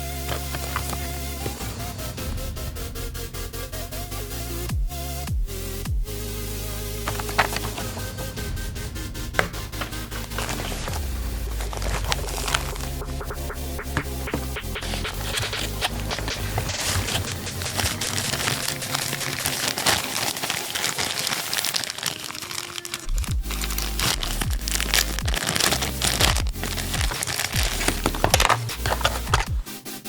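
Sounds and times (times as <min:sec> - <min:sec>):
packaging crinkling and rustling: 0:00.0 - 0:01.6, 0:07.0 - 0:08.3, 0:09.3 - 0:13.1, 0:14.0 - 0:29.7.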